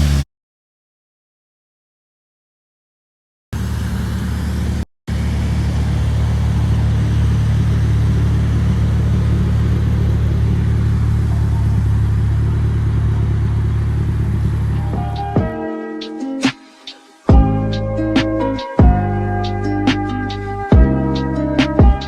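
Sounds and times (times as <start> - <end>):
car engine running steadily: 0.0 - 0.2, 3.6 - 15.5, 17.3 - 22.0.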